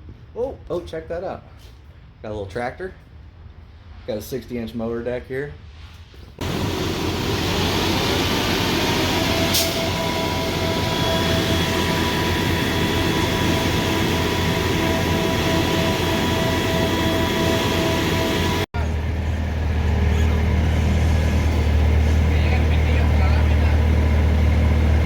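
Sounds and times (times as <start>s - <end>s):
diesel engine rumbling: 6.4s - 25.0s.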